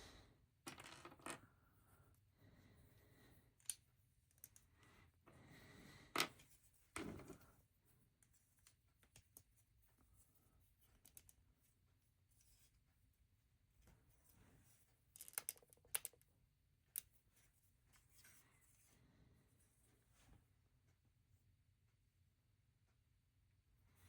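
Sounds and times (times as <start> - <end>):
plastic bricks clicking: 15.2 - 16.1.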